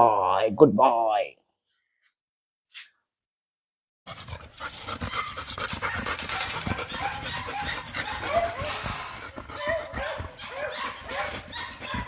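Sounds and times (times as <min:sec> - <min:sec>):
dogs panting: 0:04.1 - 0:12.0
dogs scrabbling: 0:04.1 - 0:12.0
dogs high-pitched cries: 0:05.0 - 0:12.0.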